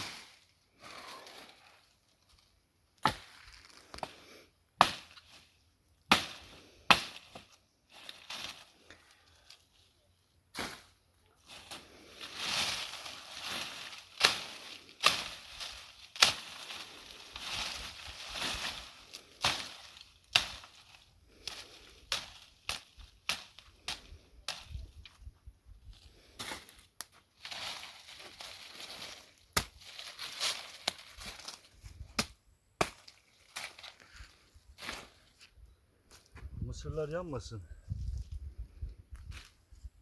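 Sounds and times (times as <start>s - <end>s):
dry rustling: 11.4s - 24.2s, 27.2s - 32.0s.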